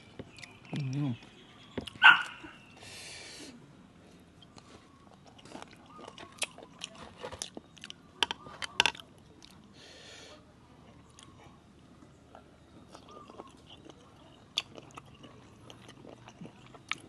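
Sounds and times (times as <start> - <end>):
wet chewing: 4.4 - 9.7, 12.3 - 17.0.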